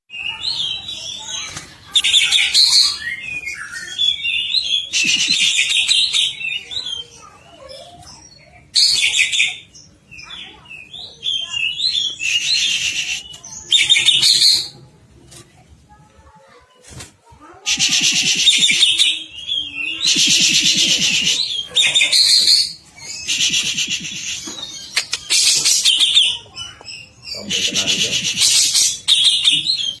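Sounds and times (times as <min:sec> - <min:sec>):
bird chattering song: 0:00.1 - 0:14.8, 0:17.7 - 0:30.0
bird singing warbling song: 0:17.7 - 0:30.0.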